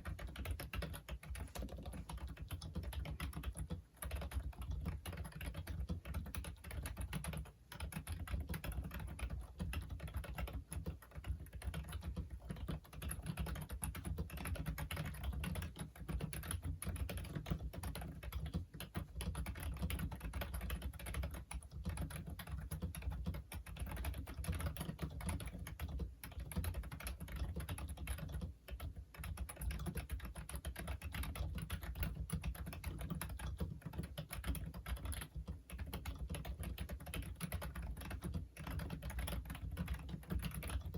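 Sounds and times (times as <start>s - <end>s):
fast keyboard typing: 0.0s - 40.9s.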